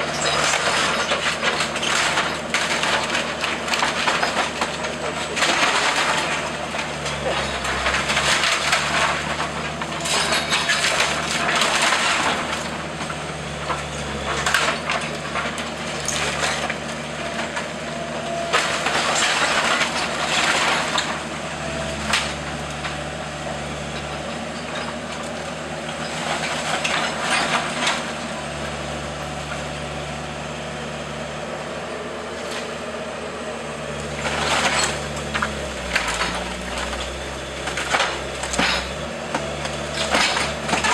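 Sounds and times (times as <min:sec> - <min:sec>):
timber cracking and splintering: 0:00.0 - 0:23.2, 0:34.0 - 0:40.9
demolition machine engine running: 0:00.0 - 0:40.9.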